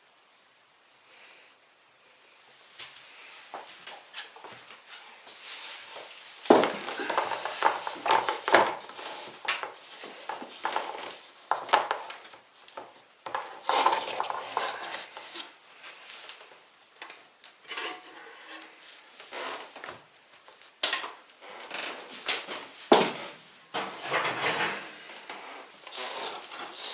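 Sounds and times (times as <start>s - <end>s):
pots and dishes clattering: 23.0s - 25.0s.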